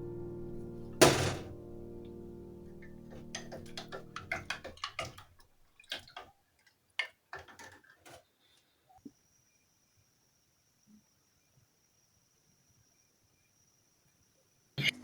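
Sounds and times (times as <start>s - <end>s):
music: 0.0s - 4.7s
irregular clicks and taps: 2.8s - 6.3s.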